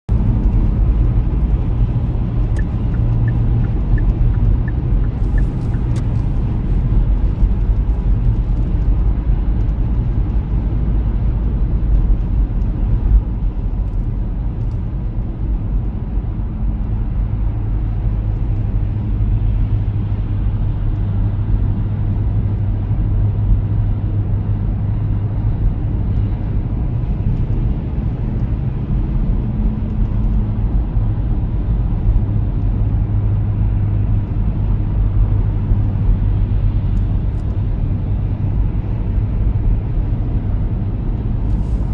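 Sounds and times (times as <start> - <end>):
road and engine rumble: 0.0 - 41.9
light even ticks: 2.4 - 6.3.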